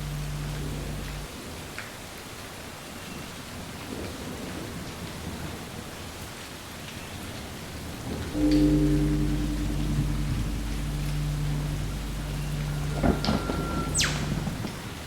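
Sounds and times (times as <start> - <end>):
soft low rumble: 0.0 - 1.3, 8.3 - 14.8.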